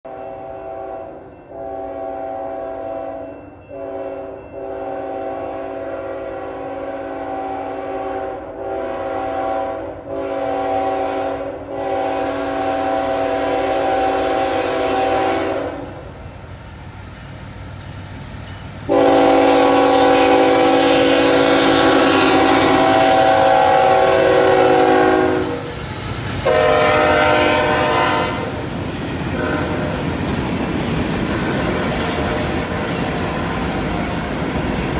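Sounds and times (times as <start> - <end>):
locomotive air horn blasts: 0.2 - 3.2, 3.8 - 16.0, 18.9 - 25.8, 26.4 - 30.1
train wheel squeal: 2.7 - 4.8, 13.2 - 15.3, 20.6 - 34.9.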